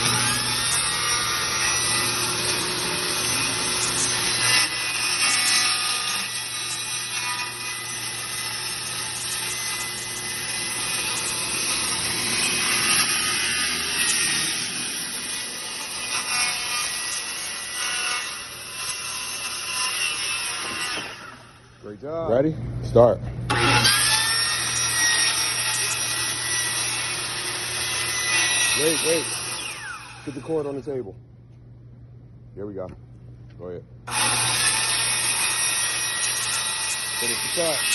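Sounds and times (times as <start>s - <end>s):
circular saw cutting wood: 0.0s - 22.0s, 23.5s - 30.9s, 34.1s - 37.9s.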